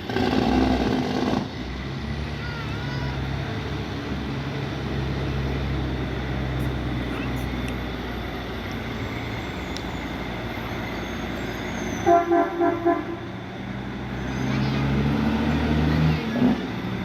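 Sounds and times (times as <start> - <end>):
truck diesel engine running: 0.0 - 17.0
vehicle horn toots: 12.0 - 13.3.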